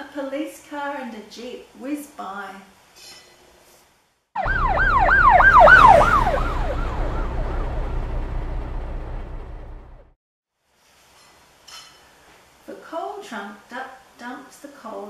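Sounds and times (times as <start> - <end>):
police siren wailing: 4.4 - 10.1
car engine rumble: 4.5 - 10.2.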